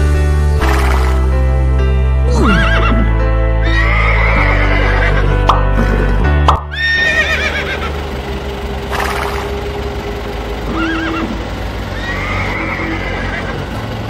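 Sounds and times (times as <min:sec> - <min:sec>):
horse whinnying: 0:02.3 - 0:05.3, 0:06.7 - 0:07.9, 0:10.7 - 0:11.4, 0:12.0 - 0:13.6.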